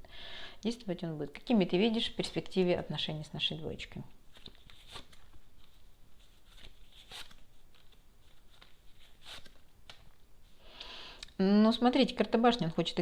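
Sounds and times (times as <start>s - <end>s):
cards rustling: 4.3s - 10.2s.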